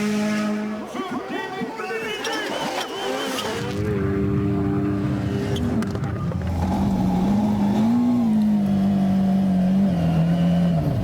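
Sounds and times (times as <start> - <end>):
rally car engine running: 3.6 - 11.0.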